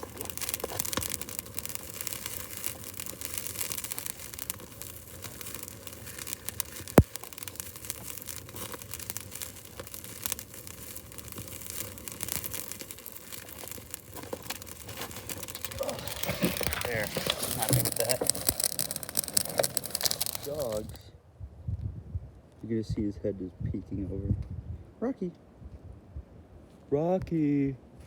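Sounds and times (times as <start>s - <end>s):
loud fire crack: 0.0s - 21.0s
wood fire crackling: 0.0s - 21.0s.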